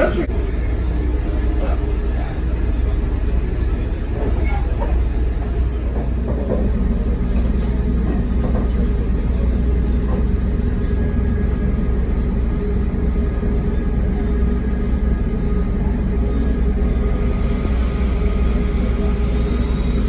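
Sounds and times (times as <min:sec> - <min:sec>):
diesel train rumbling: 0:00.0 - 0:20.0.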